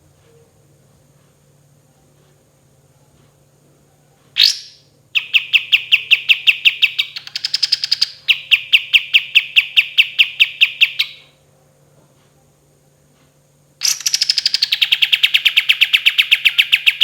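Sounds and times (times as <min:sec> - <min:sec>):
bird singing rolling trill: 0:04.4 - 0:11.3, 0:13.8 - 0:17.0.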